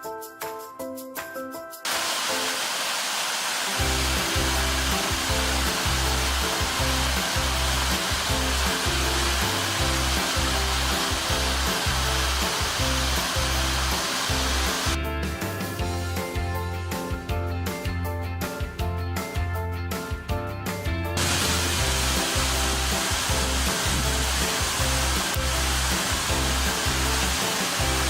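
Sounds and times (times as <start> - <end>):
waterfall roaring: 1.9 - 15.0, 21.2 - 28.0
background music with deep bass: 3.8 - 28.0.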